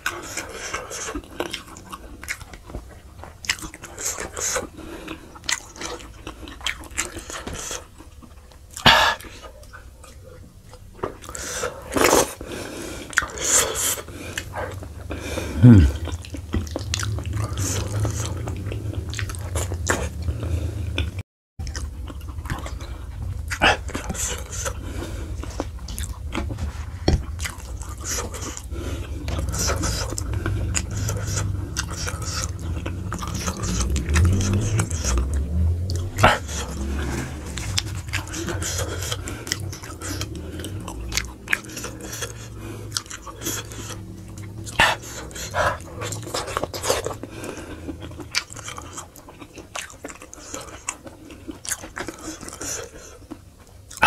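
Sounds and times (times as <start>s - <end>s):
wet chewing and lip smacks: 0.0s - 15.2s, 15.9s - 54.0s
sucking slurps: 11.1s - 54.0s.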